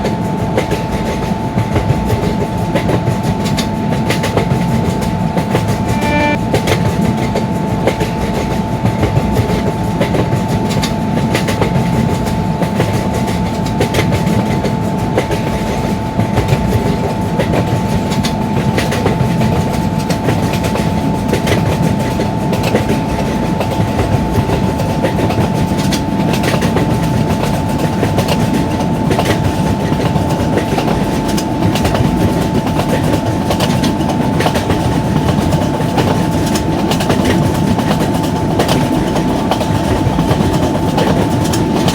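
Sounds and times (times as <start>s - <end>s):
train rumbling at high speed: 0.0s - 41.9s
steady high tone: 5.7s - 6.4s.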